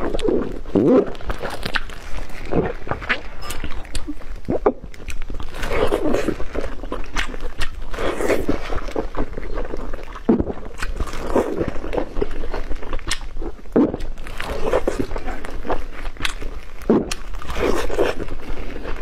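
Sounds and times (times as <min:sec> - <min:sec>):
chewing dumplings: 0:00.0 - 0:19.0
mouth and lip clicks: 0:00.0 - 0:19.0.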